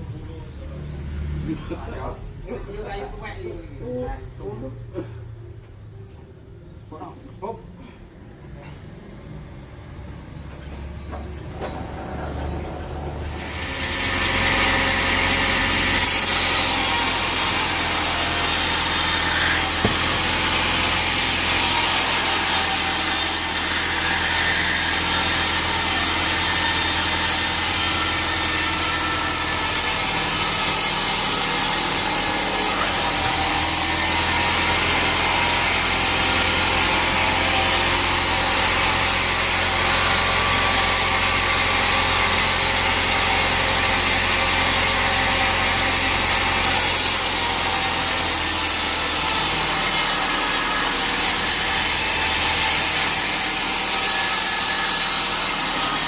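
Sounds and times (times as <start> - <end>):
saw motor hum: 13.1 - 56.0.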